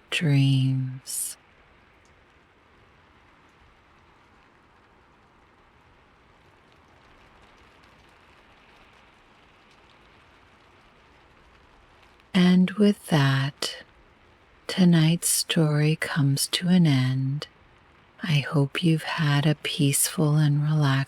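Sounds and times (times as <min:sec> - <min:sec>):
faint rain hiss: 0:00.0 - 0:21.0
soft raindrop ticks: 0:00.4 - 0:21.0.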